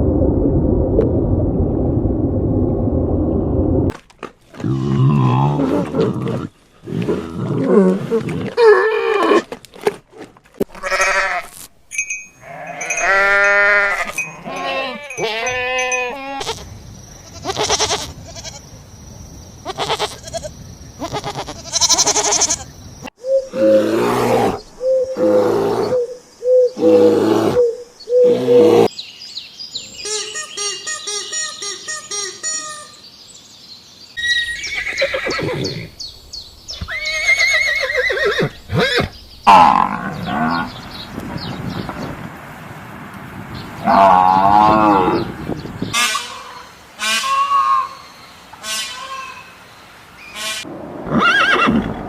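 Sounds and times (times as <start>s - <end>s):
farm animals bleating: 10.7s - 11.6s, 12.4s - 18.6s, 19.6s - 22.7s.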